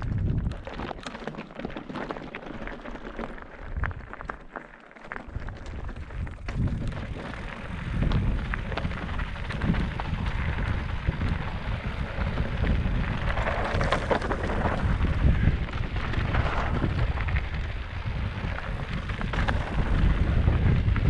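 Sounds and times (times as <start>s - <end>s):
wind buffeting microphone: 0.0s - 0.6s, 5.4s - 21.0s.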